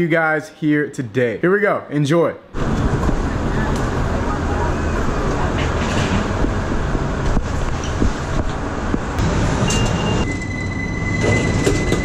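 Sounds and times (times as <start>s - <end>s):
subway train rumbling: 2.6s - 12.0s
train clattering: 5.3s - 12.0s
high-pitched wheel squeal: 9.6s - 12.0s.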